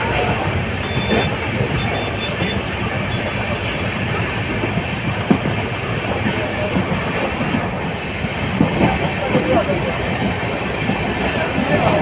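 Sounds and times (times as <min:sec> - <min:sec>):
moving train rumble: 0:00.0 - 0:12.0
wheels clicking over rail joints: 0:00.0 - 0:12.0.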